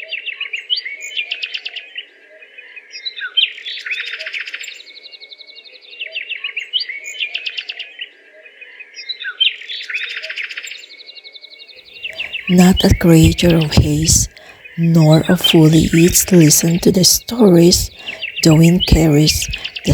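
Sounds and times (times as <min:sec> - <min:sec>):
faint low hum: 0:12.2 - 0:19.9.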